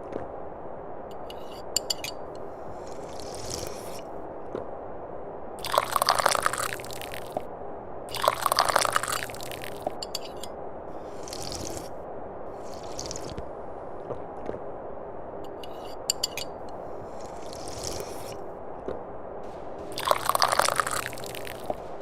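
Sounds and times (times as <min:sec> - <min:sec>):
tea slurping from a cup: 0:01.3 - 0:04.1, 0:05.6 - 0:07.5, 0:08.1 - 0:13.4, 0:15.6 - 0:18.5, 0:19.5 - 0:22.0.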